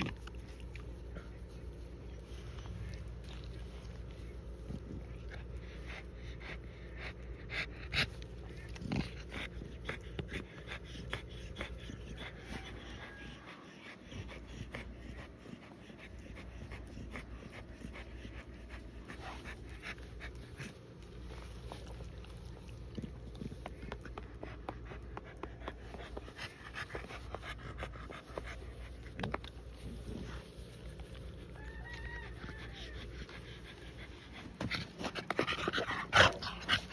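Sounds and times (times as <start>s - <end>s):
dog panting: 0.0s - 36.9s
dog whining: 31.4s - 33.9s.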